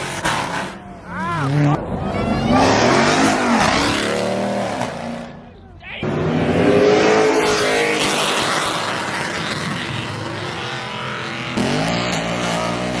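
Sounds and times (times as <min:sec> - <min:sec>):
car engine revving hard: 0:06.0 - 0:13.0.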